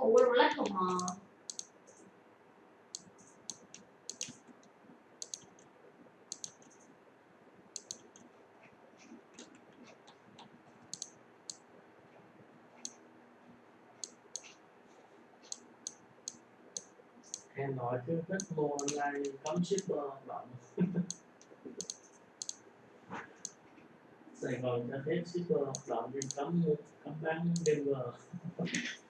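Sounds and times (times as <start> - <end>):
faint steady hiss: 0.0 - 29.0
light sharp clicks: 18.4 - 19.9, 25.7 - 26.4.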